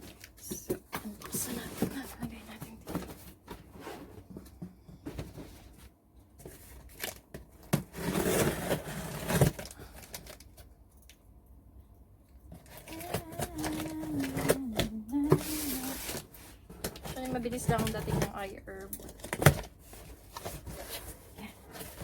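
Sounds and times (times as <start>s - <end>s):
cardboard and plastic crinkling: 0.0s - 10.7s, 12.5s - 22.0s
tape tearing: 12.6s - 16.3s.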